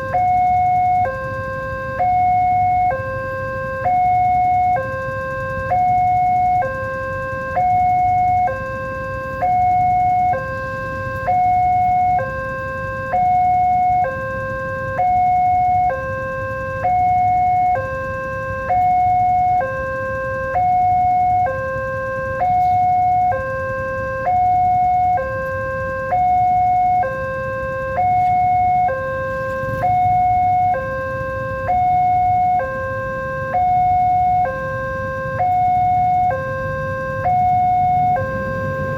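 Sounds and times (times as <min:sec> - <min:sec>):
two-tone level crossing alarm: 0:00.0 - 0:38.9.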